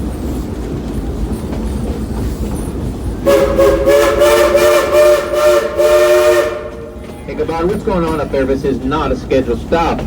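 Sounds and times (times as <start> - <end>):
steam locomotive rumbling: 0.0 - 10.0
train chime whistle blasts: 3.3 - 6.9.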